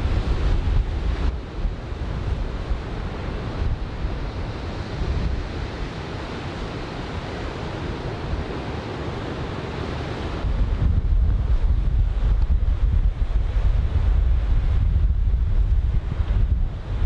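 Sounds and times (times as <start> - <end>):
wind buffeting microphone: 0.0 - 6.0, 10.3 - 17.0
surf breaking on a beach: 0.0 - 17.0.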